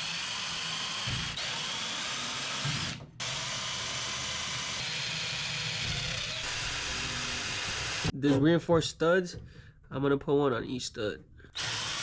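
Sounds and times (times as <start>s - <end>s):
power drill whining: 0.0s - 8.2s, 11.5s - 12.0s.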